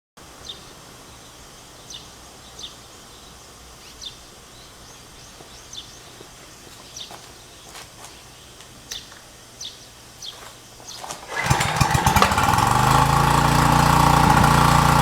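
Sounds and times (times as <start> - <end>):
outdoor background noise: 0.2 - 15.0
bird chirping: 0.4 - 11.2.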